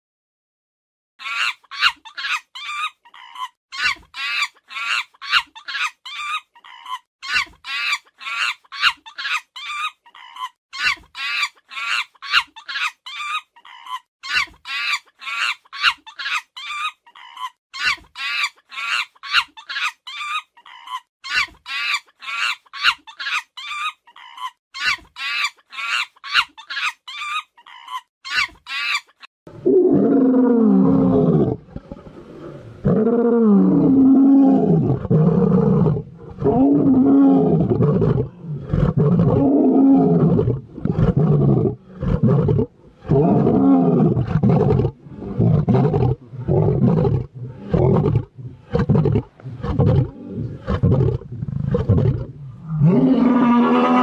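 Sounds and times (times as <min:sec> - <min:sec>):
lions growling: 0:29.6 - 0:54.0.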